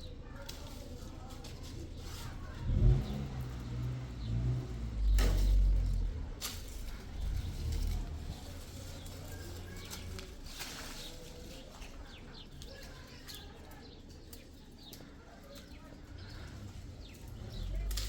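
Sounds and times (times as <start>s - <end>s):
small birds chirping: 0.0s - 18.0s
low background rumble: 15.8s - 18.0s.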